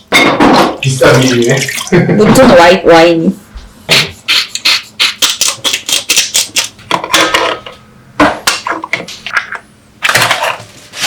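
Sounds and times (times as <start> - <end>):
kitchenware clattering: 0.0 - 2.8.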